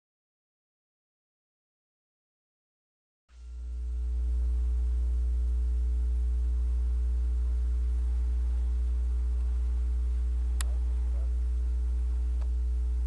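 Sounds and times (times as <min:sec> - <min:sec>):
low electrical hum: 0:03.3 - 0:13.0.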